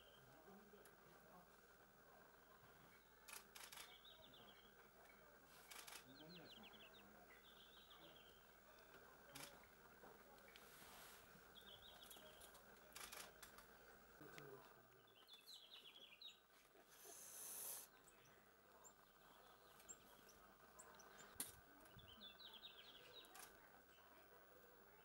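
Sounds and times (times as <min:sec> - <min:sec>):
brief hiss of noise: 0:16.9 - 0:17.9.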